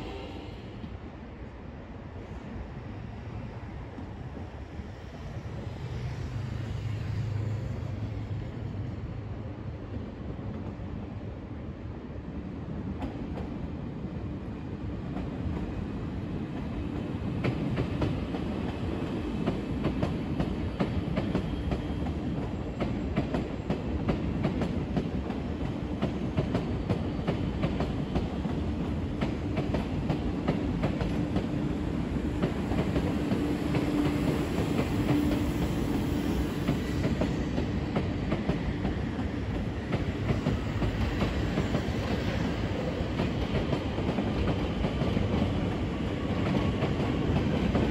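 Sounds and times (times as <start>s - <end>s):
train wheels rumbling on rails: 12.6s - 47.9s.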